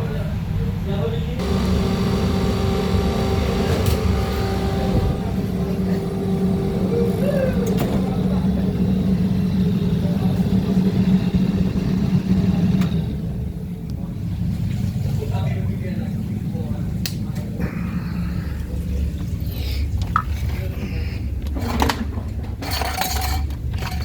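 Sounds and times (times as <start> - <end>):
motor hum: 1.4 - 14.4.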